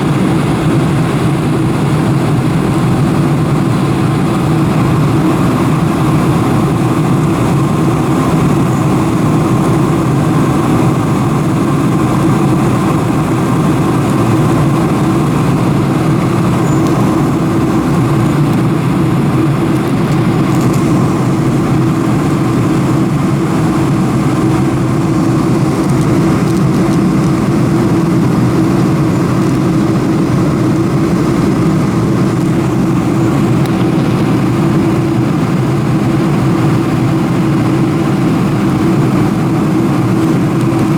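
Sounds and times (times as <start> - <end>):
airplane cabin engine drone: 0.0 - 40.9.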